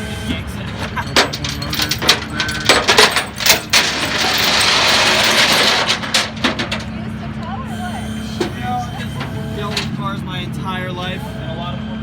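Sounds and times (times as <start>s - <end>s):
engine idling: 0.0s - 12.0s
metallic clanks and rattles: 0.6s - 7.1s, 8.4s - 10.0s.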